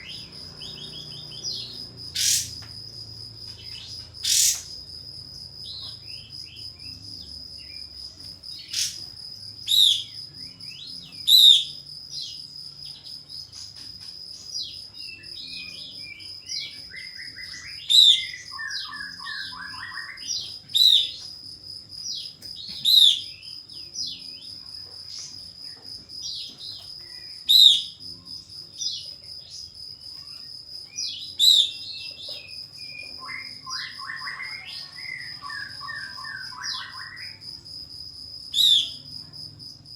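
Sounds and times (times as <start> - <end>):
high insect-like whine: 0.0 - 39.9
bird calling whistled notes: 17.0 - 21.0, 32.8 - 37.4.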